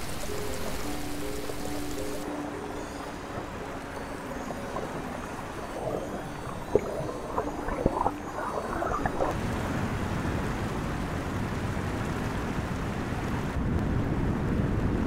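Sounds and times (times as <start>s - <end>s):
water bubbling and gurgling: 0.0s - 10.7s
rushing water: 0.0s - 13.6s.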